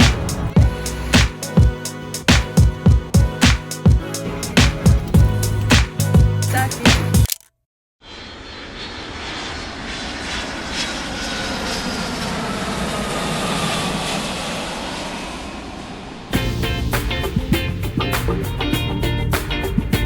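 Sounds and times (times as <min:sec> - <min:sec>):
airplane engine passing: 0:00.0 - 0:02.3, 0:08.0 - 0:19.8
faint falling whine: 0:08.0 - 0:12.9.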